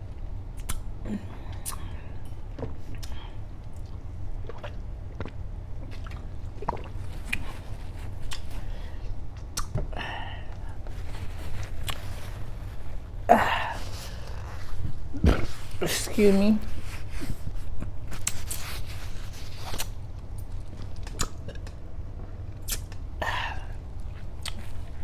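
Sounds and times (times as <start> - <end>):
wet chewing: 2.6 - 9.8, 17.7 - 21.8, 24.0 - 25.0.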